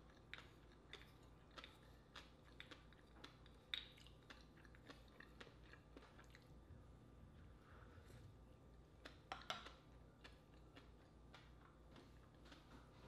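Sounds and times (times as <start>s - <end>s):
chewing clicks: 0.0s - 6.5s.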